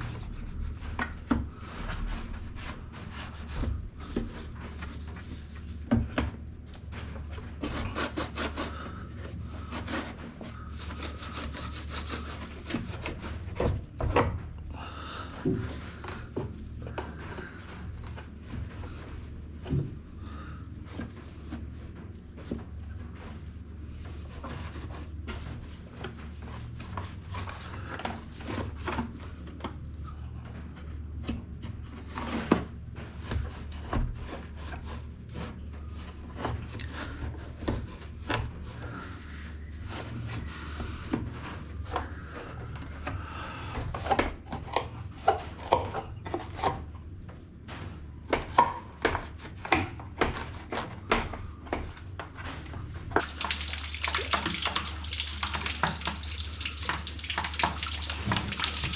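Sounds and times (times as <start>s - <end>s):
toothbrush scrubbing plastic: 9.6s - 13.6s, 53.2s - 58.9s.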